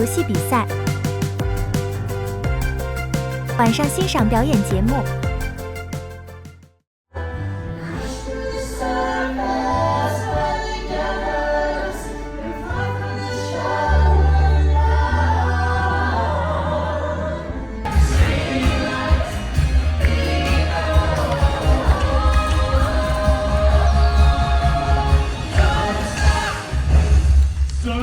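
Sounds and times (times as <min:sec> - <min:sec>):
choir singing music: 0:07.5 - 0:28.0.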